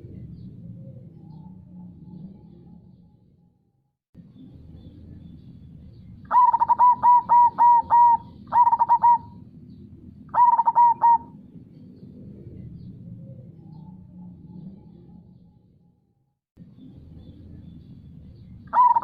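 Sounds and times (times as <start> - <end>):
dove cooing: 6.3 - 9.5, 10.3 - 11.6, 18.7 - 19.0.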